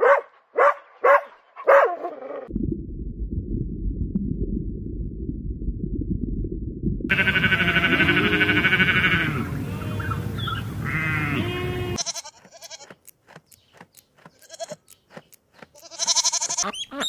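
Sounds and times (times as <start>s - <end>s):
sheep bleating: 7.1s - 10.2s, 10.8s - 13.0s, 14.3s - 14.9s, 15.7s - 17.0s
goat crunching grass: 12.0s - 16.6s.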